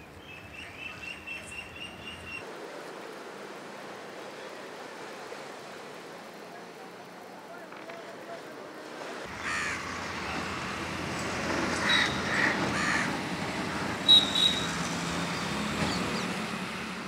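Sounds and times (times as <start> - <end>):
distant traffic hum: 0.0 - 17.0
birds calling: 9.3 - 10.5, 11.2 - 13.2, 14.0 - 16.6.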